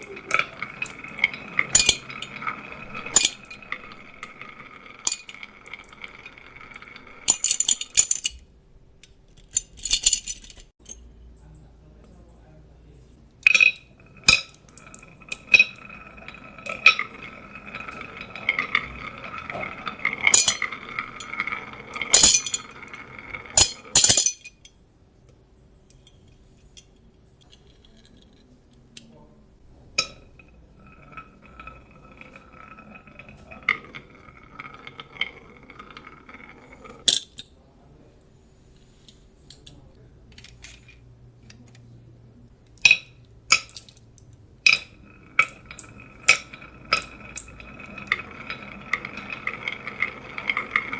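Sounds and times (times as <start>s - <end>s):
marbles clicking against track: 0.0s - 8.4s, 13.5s - 24.1s, 30.0s - 37.2s, 42.8s - 50.9s
marbles rolling on a track: 0.0s - 8.5s, 13.4s - 24.6s, 29.8s - 37.2s, 42.8s - 50.9s.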